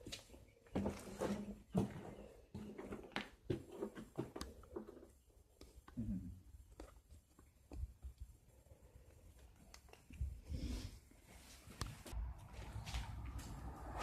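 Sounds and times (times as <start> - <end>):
faint footsteps: 0.0 - 4.8, 11.2 - 14.0.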